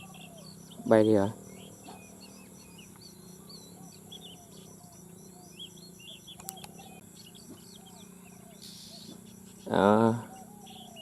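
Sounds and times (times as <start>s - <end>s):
birds chirping: 0.0s - 11.0s
high insect buzz: 0.0s - 11.0s
sharp click: 6.4s - 6.8s.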